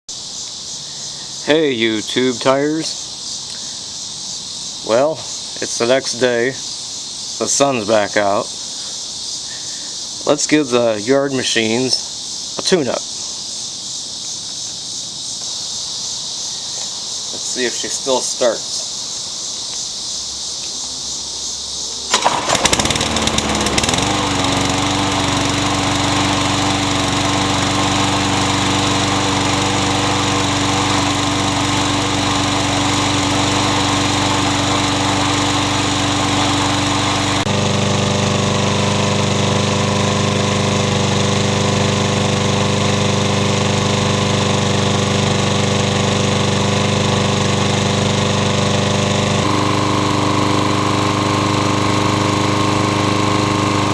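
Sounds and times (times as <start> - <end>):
lawn mower engine: 22.1 - 53.9.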